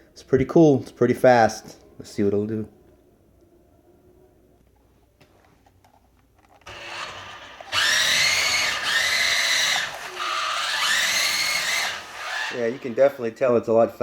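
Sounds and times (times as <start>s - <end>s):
toy car electric motors whining: 6.6s - 13.0s.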